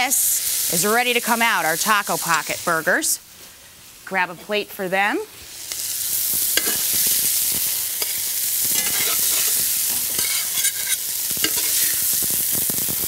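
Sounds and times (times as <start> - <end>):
burger patties sizzling in a pan: 0.0 - 13.0
spatula scraping the pan: 6.6 - 7.0, 8.0 - 12.2.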